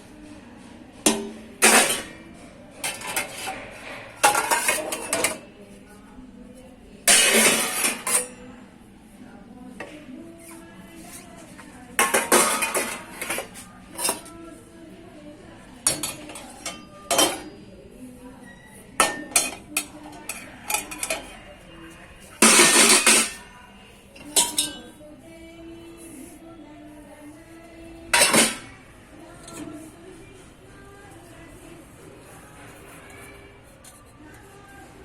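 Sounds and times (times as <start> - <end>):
dishes and cutlery clinking: 1.0 - 5.7, 7.0 - 8.5, 9.8 - 14.4, 15.8 - 17.6, 18.4 - 21.5, 22.3 - 23.5, 24.1 - 25.0, 28.1 - 28.8.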